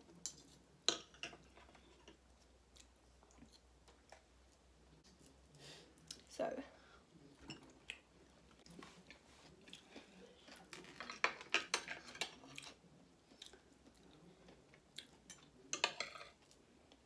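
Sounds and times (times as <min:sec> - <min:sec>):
chewing and crunching food: 0:01.4 - 0:06.3, 0:07.3 - 0:15.7.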